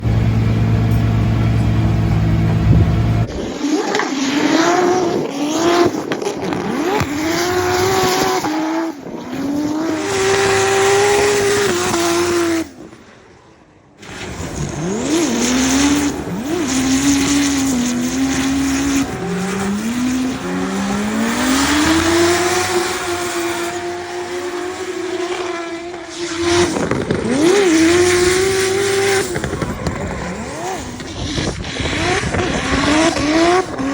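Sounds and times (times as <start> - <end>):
car engine revving: 0.0 - 13.0, 14.0 - 33.9.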